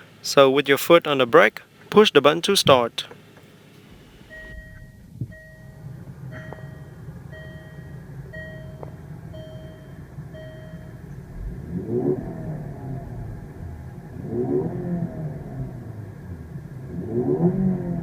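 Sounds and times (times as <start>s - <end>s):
car engine idling and revving: 3.2s - 18.0s
cabin warning chime beeping: 4.3s - 11.1s.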